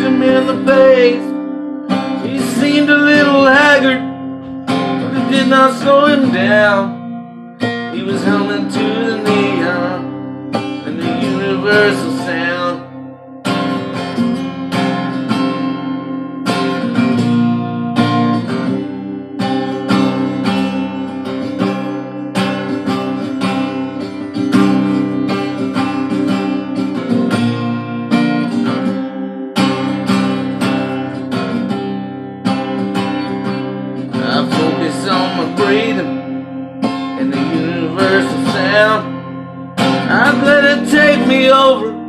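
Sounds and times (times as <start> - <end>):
person singing: 0.0 - 13.2, 34.1 - 42.0
acoustic guitar strumming: 0.0 - 42.0.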